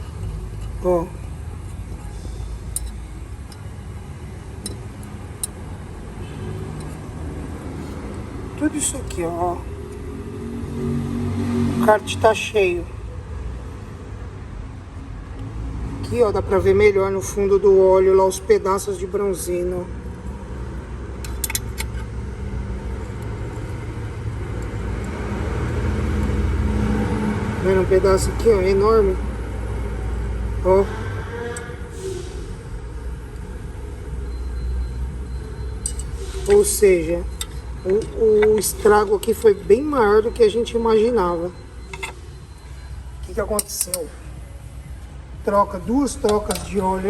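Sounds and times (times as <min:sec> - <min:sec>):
low workshop rumble: 0:00.0 - 0:15.2
vehicle engine rumbling: 0:00.0 - 0:47.0.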